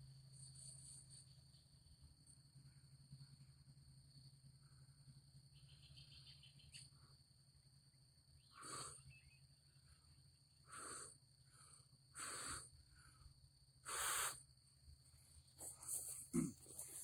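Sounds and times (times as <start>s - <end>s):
person breathing out in puffs: 10.7s - 14.4s.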